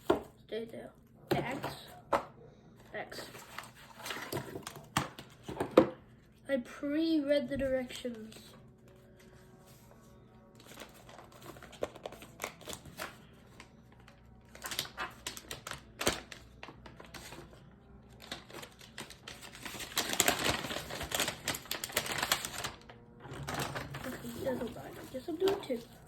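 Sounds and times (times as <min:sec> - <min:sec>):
packaging crinkling and rustling: 0:10.6 - 0:26.0.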